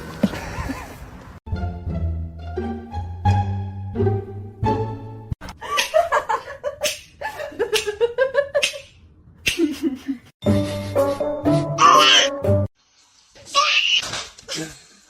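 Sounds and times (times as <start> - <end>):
light background music: 1.5 - 5.4, 10.4 - 12.7.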